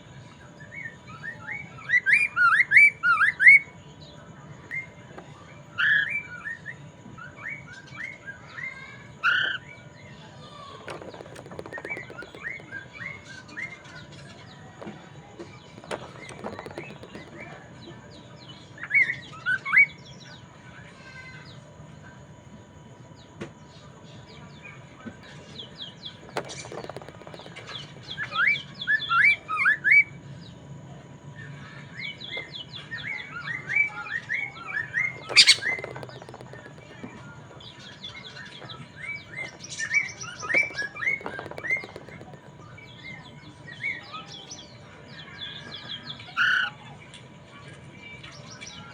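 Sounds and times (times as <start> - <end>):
bird singing chirped notes: 35.2 - 36.0.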